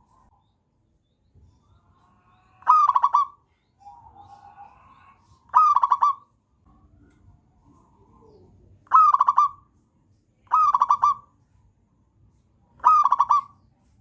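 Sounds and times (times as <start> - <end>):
dove cooing: 2.6 - 6.2, 7.8 - 9.7, 10.5 - 11.3, 12.8 - 13.6.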